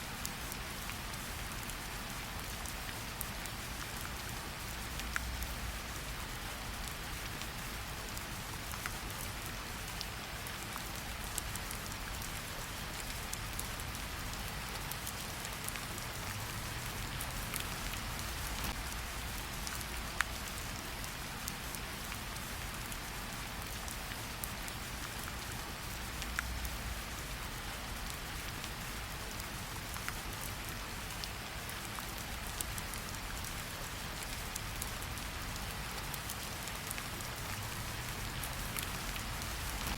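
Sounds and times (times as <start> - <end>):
steady rain hiss: 0.0 - 39.9
raindrops ticking sharply: 32.2 - 39.9.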